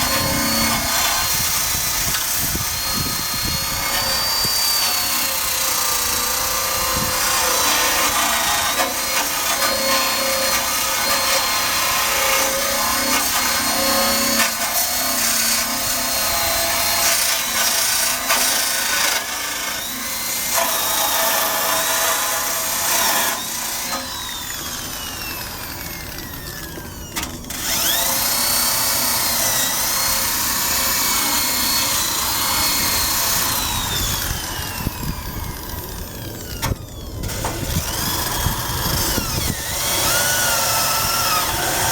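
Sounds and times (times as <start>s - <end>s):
drill click: 0.0s - 11.9s, 23.0s - 41.9s
drill wire brush scraping metal: 0.0s - 41.9s.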